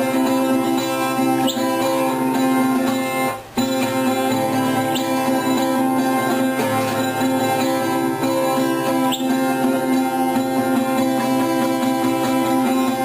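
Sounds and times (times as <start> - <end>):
acoustic guitar music: 0.0 - 13.0
high rising chirp: 1.2 - 2.0, 3.6 - 5.8, 8.6 - 9.6.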